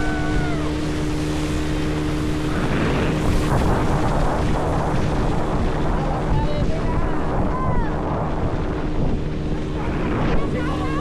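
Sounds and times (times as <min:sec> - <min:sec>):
water spray rushing: 0:00.0 - 0:07.6
motorboat engine running: 0:00.0 - 0:11.0
wind on microphone: 0:00.0 - 0:11.0.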